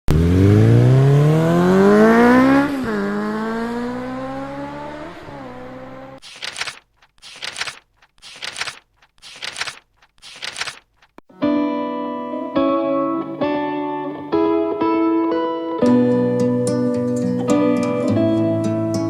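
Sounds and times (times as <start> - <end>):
motorcycle engine accelerating: 0.1 - 6.2.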